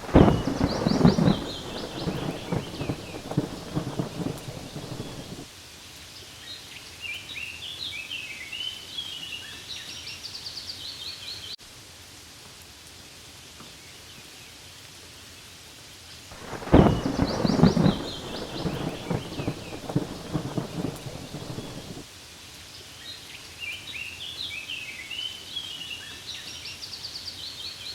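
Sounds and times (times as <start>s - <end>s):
thunder rumble: 0.0s - 5.5s, 16.4s - 22.0s
rain pattering on leaves: 0.0s - 10.2s, 11.4s - 27.9s
bird singing: 0.1s - 5.4s, 16.5s - 22.0s.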